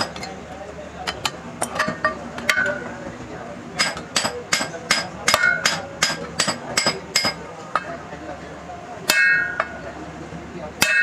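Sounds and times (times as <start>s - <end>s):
hammer striking steel: 1.0s - 3.0s, 3.8s - 8.0s, 9.0s - 9.8s, 10.8s - 11.0s.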